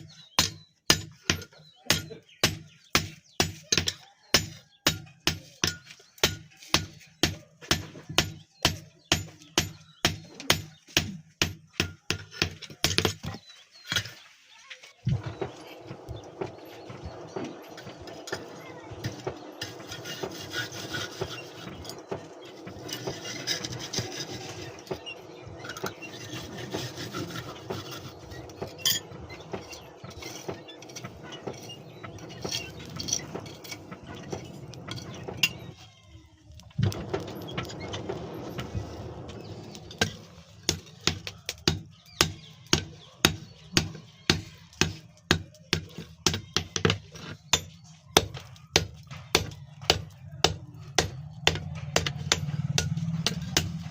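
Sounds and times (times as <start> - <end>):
hand rasping on steel blade: 19.1 - 22.0.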